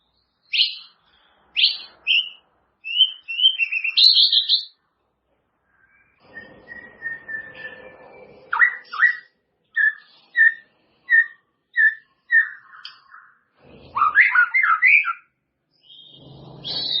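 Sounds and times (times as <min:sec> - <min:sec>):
bird singing whistled notes: 0:01.6 - 0:04.8, 0:05.7 - 0:13.4, 0:14.0 - 0:17.0
harsh noisy bird note: 0:15.8 - 0:17.0.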